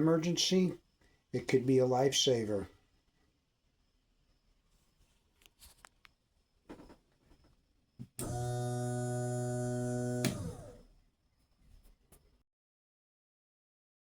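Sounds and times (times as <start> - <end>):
click: 8.0 - 8.6, 10.1 - 10.7
electric pump motor humming: 8.0 - 10.8.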